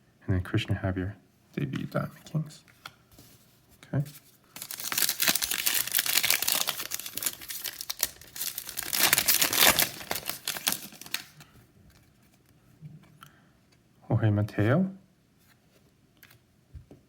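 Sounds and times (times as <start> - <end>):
foil wrapper crinkling and tearing: 4.5 - 11.5.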